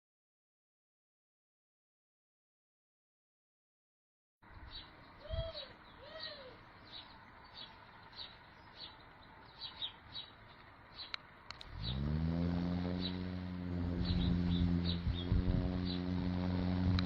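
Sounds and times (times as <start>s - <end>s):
lower arching bird calls: 4.5s - 16.8s
birds chirping: 4.5s - 17.0s.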